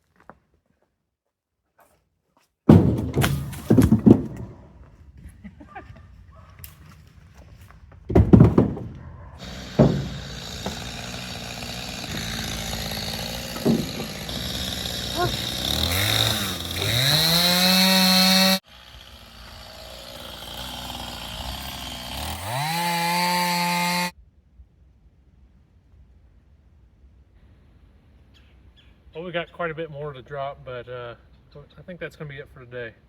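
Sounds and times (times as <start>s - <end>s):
firewood thunking down: 2.7s - 4.9s, 6.9s - 18.0s.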